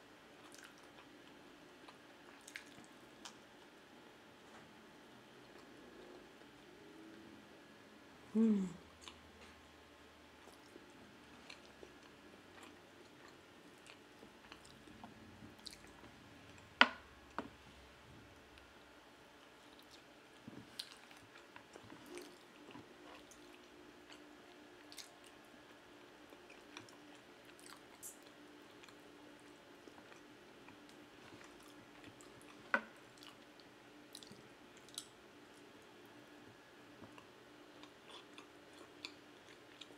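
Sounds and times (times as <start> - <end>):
chewing mouth sounds: 0.4 - 1.1, 1.8 - 3.4
small chewing clicks: 0.4 - 3.7, 10.4 - 16.7, 19.4 - 25.5, 26.2 - 35.8, 37.0 - 39.9.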